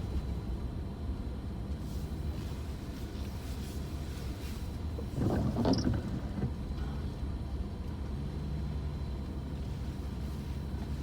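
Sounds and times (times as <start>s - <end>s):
road noise inside car: 0.0s - 11.0s.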